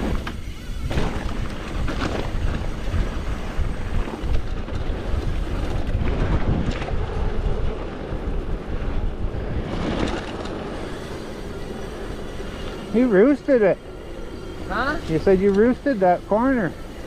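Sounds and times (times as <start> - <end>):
wind on microphone: 0.0 - 12.9
bike rattling over bumps: 0.0 - 17.0.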